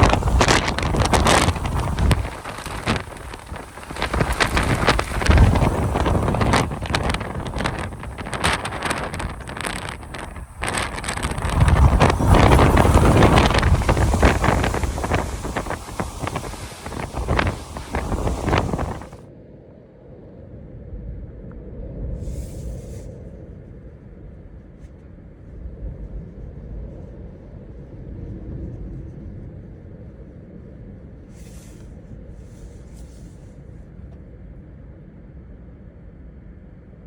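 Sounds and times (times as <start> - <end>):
wind gusts hissing: 0.0 - 19.2, 22.0 - 24.3, 30.7 - 33.9
strong wind rumbling: 0.0 - 37.0.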